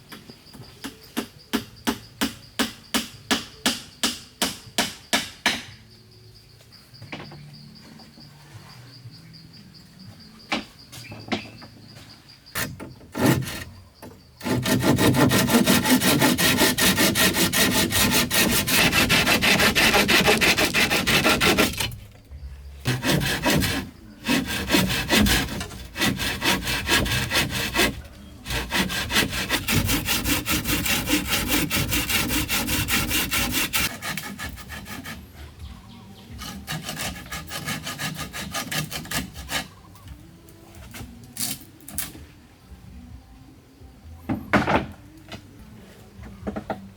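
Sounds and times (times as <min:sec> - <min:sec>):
saw cutting wood: 0:12.6 - 0:13.7, 0:14.4 - 0:22.0, 0:22.8 - 0:35.2, 0:36.4 - 0:39.7.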